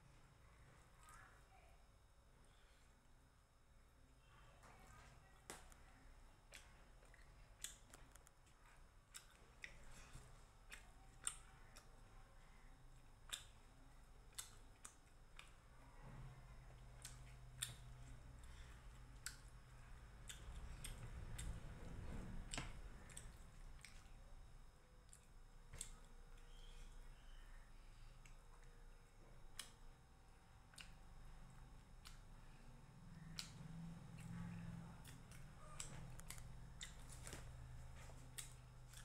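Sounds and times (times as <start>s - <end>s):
low steady hum: 0.0s - 39.0s
chewing and mouth noises: 6.4s - 15.9s, 16.6s - 24.3s, 25.0s - 27.4s, 30.6s - 39.0s.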